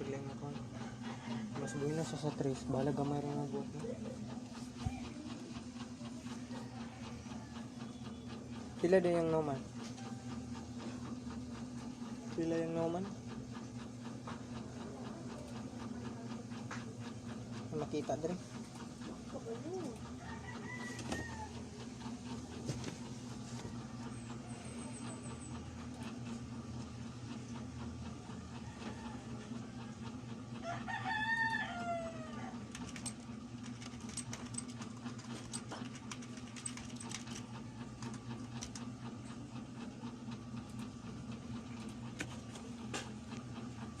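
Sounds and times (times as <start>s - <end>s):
rooster crowing: 0.8s - 2.2s, 20.2s - 21.7s, 28.6s - 29.7s, 30.6s - 32.6s.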